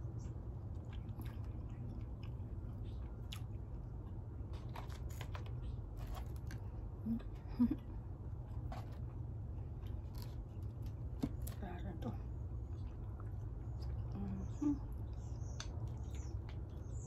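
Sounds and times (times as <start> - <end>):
person chewing and biting food: 0.0 - 7.3
steady low hum: 0.0 - 17.0
small clicks and crunches: 4.4 - 6.7, 8.5 - 11.8.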